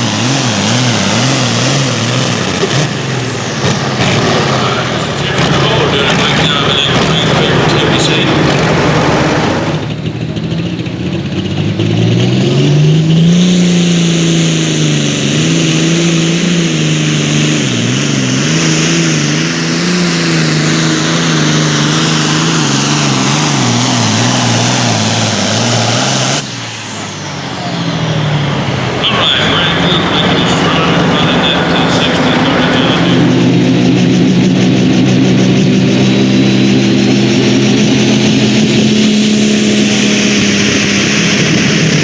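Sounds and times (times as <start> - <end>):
engine at full throttle: 0.0 - 42.0.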